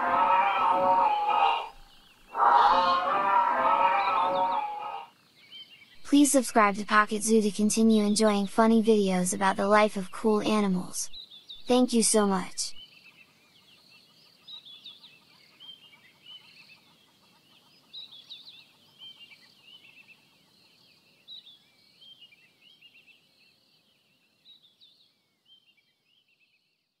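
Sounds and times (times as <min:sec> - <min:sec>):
birds chirping: 0:00.0 - 0:05.1, 0:06.2 - 0:12.8
soft outdoor background hiss: 0:04.9 - 0:26.7.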